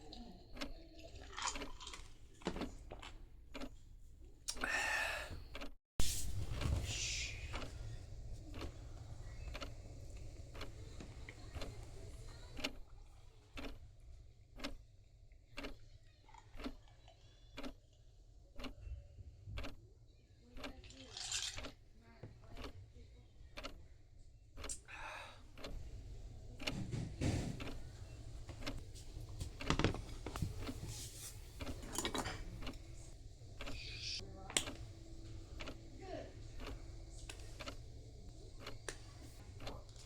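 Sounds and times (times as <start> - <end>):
clock ticking: 3.5 - 3.7, 8.5 - 9.7, 10.5 - 10.7, 11.4 - 11.8, 12.4 - 12.8, 13.6 - 13.8, 14.6 - 14.8, 15.6 - 15.8, 16.6 - 16.8, 17.6 - 17.8, 18.6 - 18.8, 19.6 - 19.8, 20.6 - 20.8, 23.6 - 23.8, 25.6 - 25.8, 26.6 - 26.8, 27.6 - 27.8, 28.5 - 28.8, 35.4 - 39.0.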